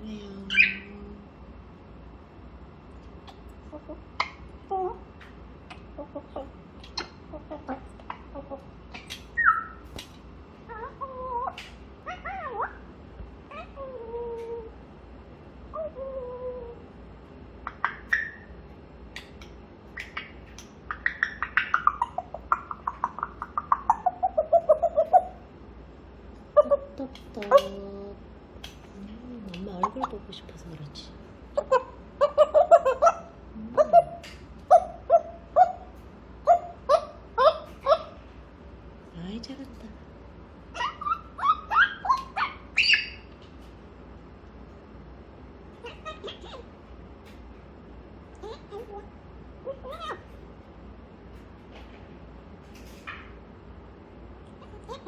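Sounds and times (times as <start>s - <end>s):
parrot calling: 0.5s - 0.9s, 5.7s - 10.0s, 10.6s - 12.9s, 13.5s - 14.8s, 15.7s - 16.8s, 17.6s - 25.5s, 26.5s - 27.8s, 31.5s - 38.3s, 40.7s - 43.4s, 45.7s - 46.9s, 48.3s - 50.5s, 54.4s - 55.0s.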